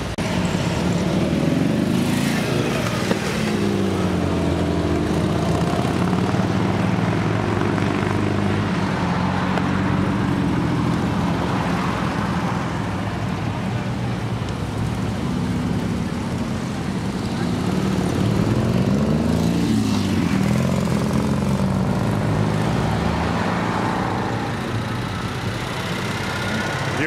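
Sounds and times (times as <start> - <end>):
classic car engines driving past: 0.0 - 27.0.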